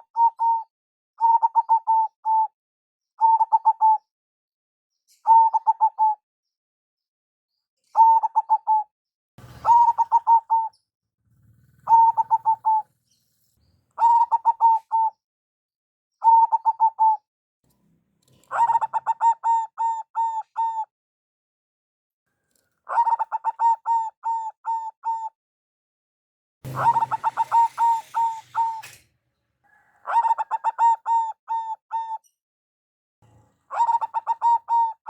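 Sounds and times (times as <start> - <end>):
dove cooing: 0.0 - 0.6, 1.2 - 2.5, 3.2 - 4.0, 5.3 - 6.2, 9.4 - 13.1, 14.0 - 15.2, 16.2 - 17.2, 18.4 - 20.9, 22.9 - 25.3, 26.7 - 29.0, 29.6 - 32.2, 33.5 - 35.0.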